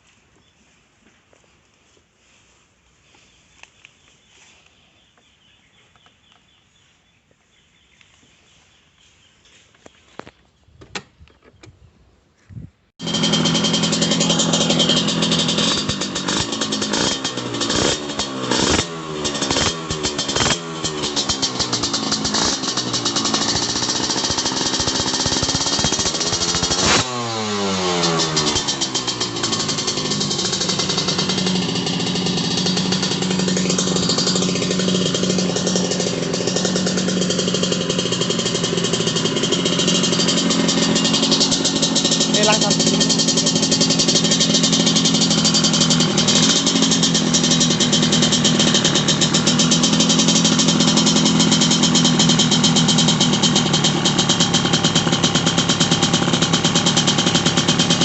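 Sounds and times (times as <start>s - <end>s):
go-kart engine revving: 13.0s - 58.0s.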